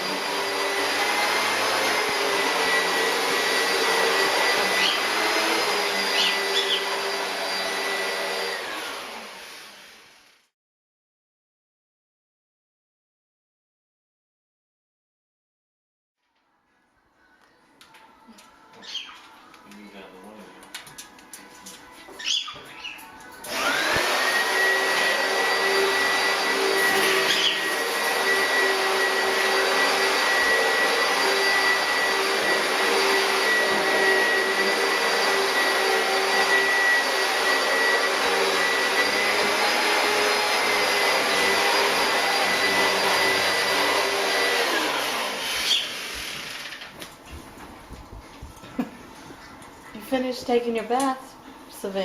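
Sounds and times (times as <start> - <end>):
appliance motor whining: 0.0 - 10.0, 22.2 - 47.0.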